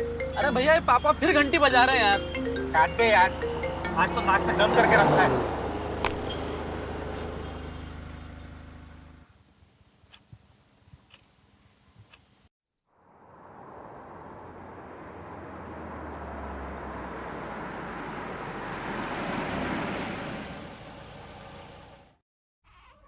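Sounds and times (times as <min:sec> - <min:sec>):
car approaching: 0:00.0 - 0:09.3, 0:15.3 - 0:22.2
crickets chirping: 0:12.7 - 0:18.9
brief high squeal: 0:19.6 - 0:20.4.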